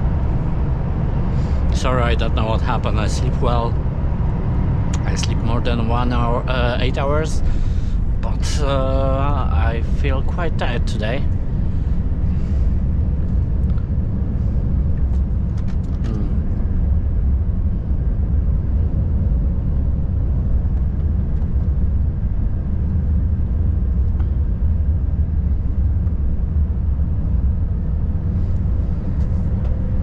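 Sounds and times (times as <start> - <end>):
truck diesel engine droning: 0.0 - 15.0, 15.9 - 18.0.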